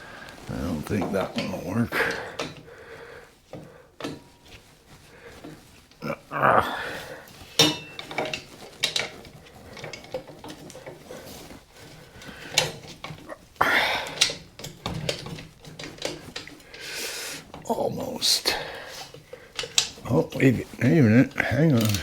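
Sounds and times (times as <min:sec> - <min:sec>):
metal hand tools clinking: 0:00.5 - 0:02.7, 0:06.7 - 0:11.0, 0:12.5 - 0:22.0.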